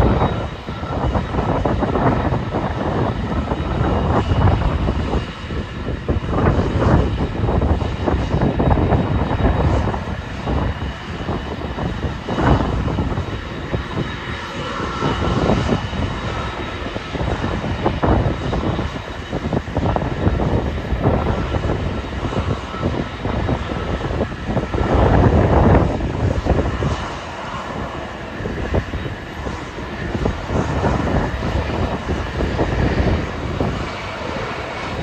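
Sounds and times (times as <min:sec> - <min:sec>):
jet engines whining: 0:00.0 - 0:35.0
wind buffeting microphone: 0:00.0 - 0:35.0.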